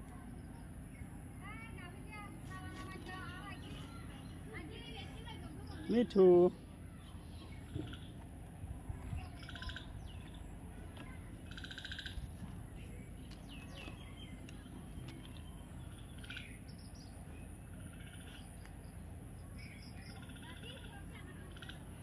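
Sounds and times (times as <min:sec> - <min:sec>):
bird chirps and trilled calls: 0:02.8 - 0:08.3, 0:09.0 - 0:22.0.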